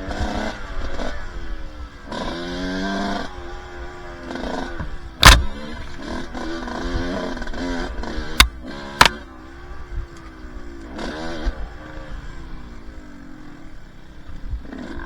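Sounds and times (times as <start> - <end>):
two-stroke dirt bike engine: 0.0 - 15.0
sharp loud knocks: 5.2 - 5.6.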